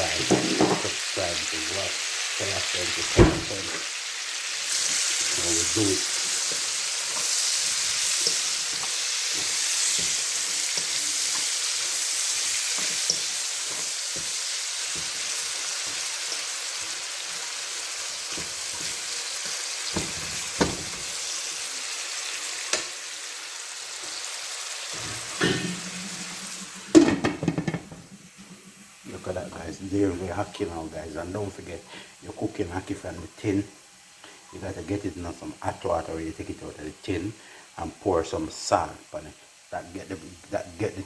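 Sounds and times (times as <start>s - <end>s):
vegetables sizzling in hot oil: 0.0s - 36.2s, 39.4s - 41.0s
sharp knocks: 26.8s - 28.9s.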